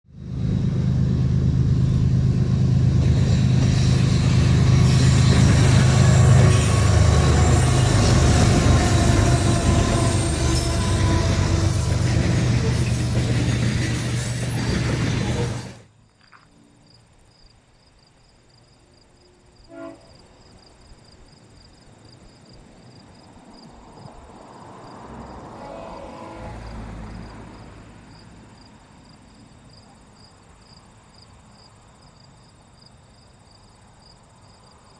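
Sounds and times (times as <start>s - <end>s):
train passing rumble: 0.0s - 15.9s, 21.4s - 30.2s
crickets chirping: 0.3s - 34.9s.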